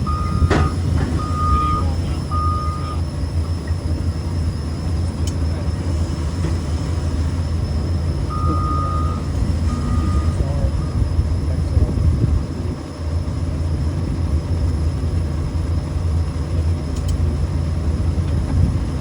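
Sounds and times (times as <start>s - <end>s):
backup alarm beeping: 0.0s - 11.6s
engine humming: 0.0s - 19.0s.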